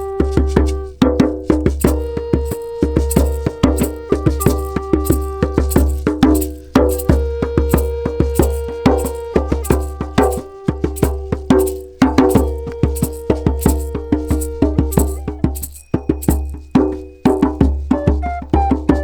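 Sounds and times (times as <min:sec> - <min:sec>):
tuned percussion notes: 0:00.0 - 0:19.0.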